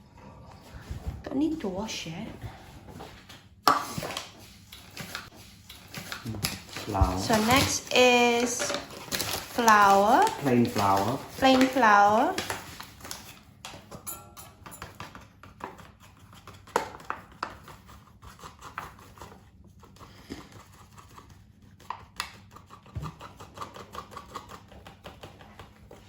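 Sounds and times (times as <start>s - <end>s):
kitchen items clicking and rustling: 3.1s - 17.9s.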